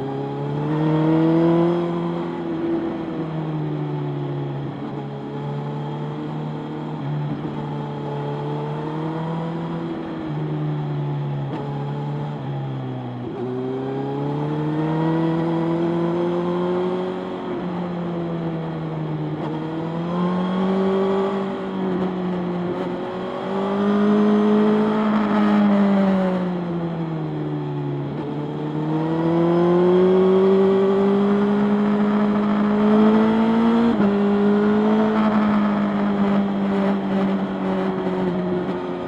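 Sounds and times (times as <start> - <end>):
motorcycle engine revving: 28.5 - 39.0.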